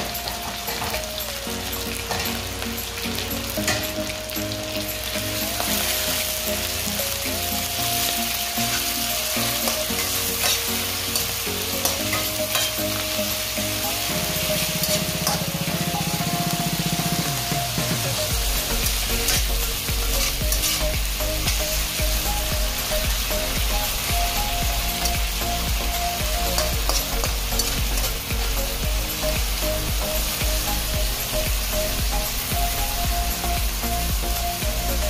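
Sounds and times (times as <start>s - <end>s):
meat sizzling in a frying pan: 0.0s - 35.0s
metal spatula scraping and tapping: 9.7s - 12.8s.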